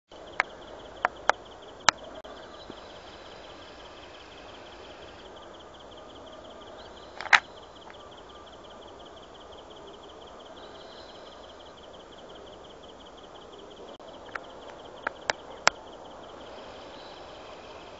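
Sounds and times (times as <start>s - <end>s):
sharp clicks: 7.2s - 8.0s.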